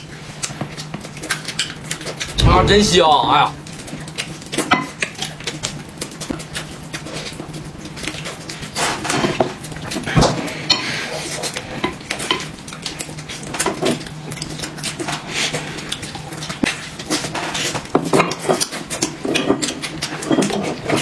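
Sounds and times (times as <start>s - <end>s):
steady low hum: 2.2s - 3.9s.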